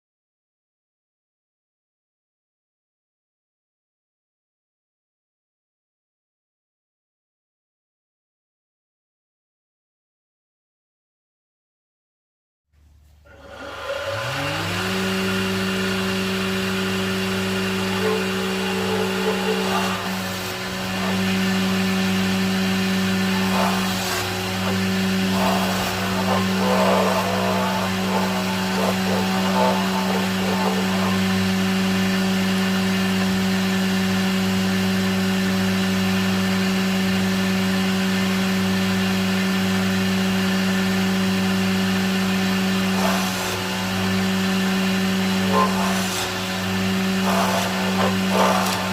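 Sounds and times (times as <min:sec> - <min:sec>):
power tool motor humming: 0:13.3 - 0:48.9.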